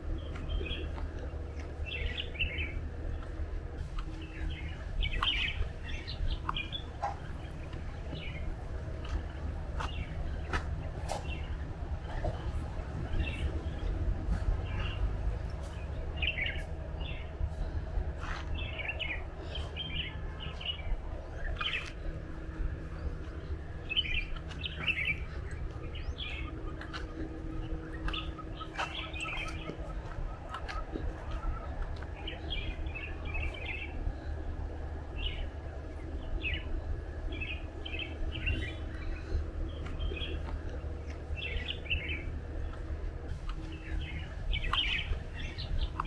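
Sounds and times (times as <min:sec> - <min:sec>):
birds chirping: 0:00.0 - 0:46.0
low background rumble: 0:00.0 - 0:46.0.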